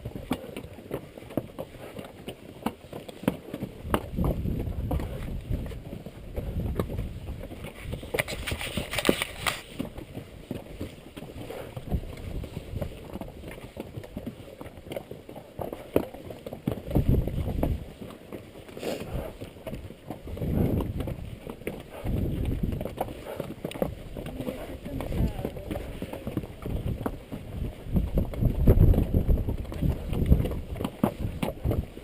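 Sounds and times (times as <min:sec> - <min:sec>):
hooves clopping on rocky trail: 0:00.0 - 0:32.0
wind buffeting microphone: 0:03.8 - 0:10.6, 0:16.8 - 0:18.0, 0:19.0 - 0:32.0.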